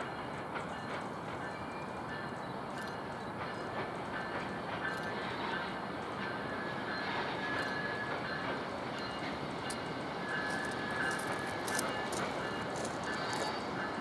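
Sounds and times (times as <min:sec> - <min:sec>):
train rolling on rails: 0:00.0 - 0:14.0
sharp ticks: 0:10.5 - 0:13.5.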